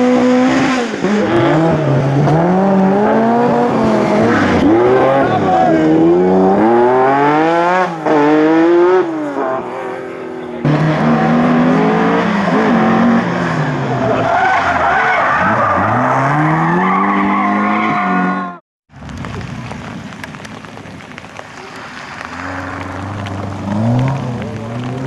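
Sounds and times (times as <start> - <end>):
rally car engines revving: 0.0 - 18.6, 21.7 - 25.0
tyres squealing and skidding: 9.6 - 18.6.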